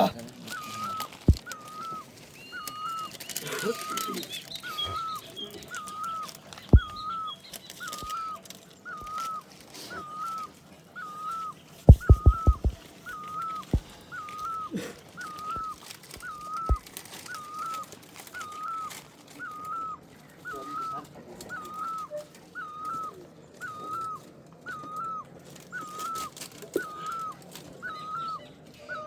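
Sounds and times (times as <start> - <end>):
faint knocks: 11.9 - 12.8.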